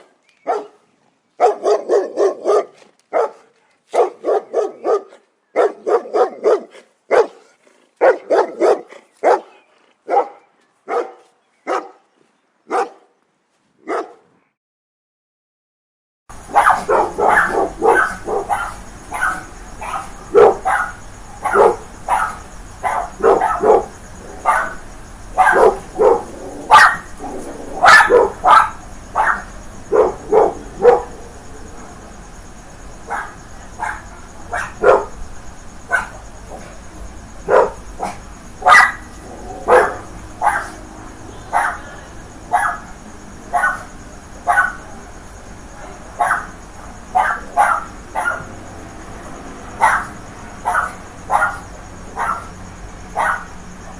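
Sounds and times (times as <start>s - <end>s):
dog barking: 0.0s - 0.8s, 1.4s - 12.0s, 12.7s - 13.1s, 13.8s - 14.3s, 16.5s - 24.8s, 25.4s - 31.2s, 33.1s - 35.1s, 35.9s - 36.7s, 37.4s - 40.8s, 41.5s - 41.9s, 42.5s - 44.9s, 46.2s - 46.5s, 47.1s - 48.5s, 49.8s - 52.6s, 53.2s - 53.5s.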